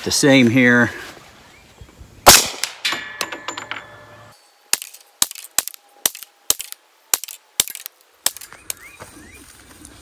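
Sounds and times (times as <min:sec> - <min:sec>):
carbine gunshots: 0:02.3 - 0:02.9
gunshot echo: 0:02.3 - 0:03.1.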